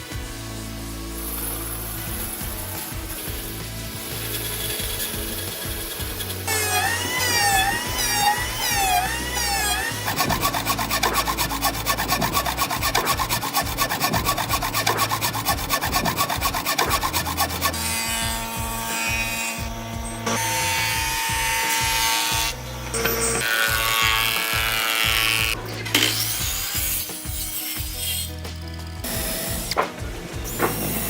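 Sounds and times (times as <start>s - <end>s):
saw cutting wood: 0.0s - 31.0s.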